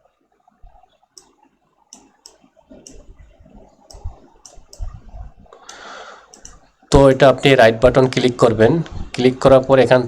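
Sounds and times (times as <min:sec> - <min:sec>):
computer mouse clicking: 0:01.2 - 0:03.2, 0:03.9 - 0:05.0, 0:05.7 - 0:06.7.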